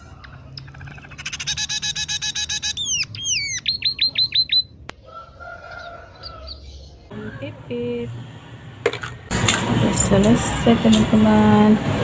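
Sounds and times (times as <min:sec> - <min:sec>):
bird chattering and chirping: 0:00.0 - 0:04.8.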